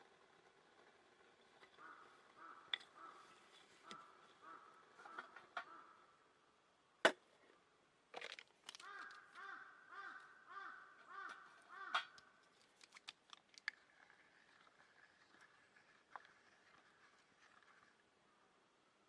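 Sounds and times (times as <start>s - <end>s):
crow cawing: 1.8s - 6.3s, 8.8s - 12.4s.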